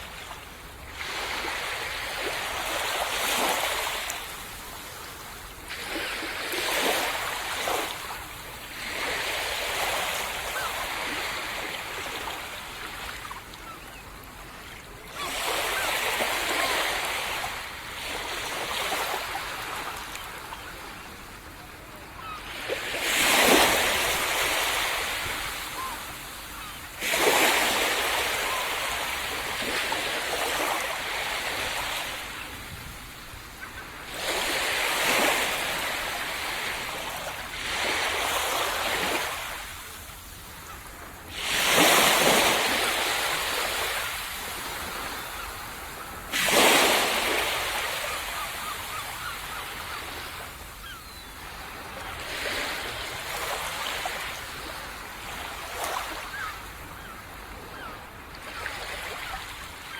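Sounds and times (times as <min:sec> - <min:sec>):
ocean waves crashing on beach: 0:15.0 - 0:57.9.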